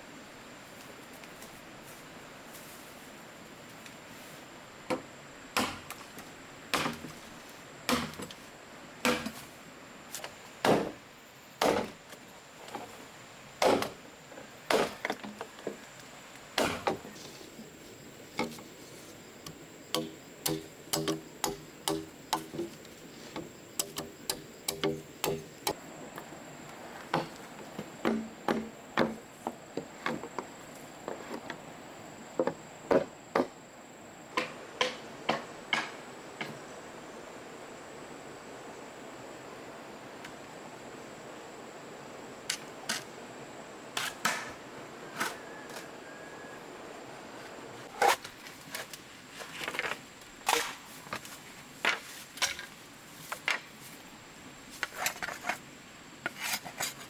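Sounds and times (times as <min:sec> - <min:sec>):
chopping blows on bamboo: 0:05.6 - 0:06.0, 0:06.7 - 0:07.2, 0:07.9 - 0:08.4, 0:09.0 - 0:09.5, 0:10.6 - 0:11.0, 0:11.6 - 0:12.0, 0:13.6 - 0:14.0, 0:14.7 - 0:15.2, 0:16.6 - 0:17.2, 0:19.4 - 0:25.8, 0:27.1 - 0:29.2, 0:44.0 - 0:45.8.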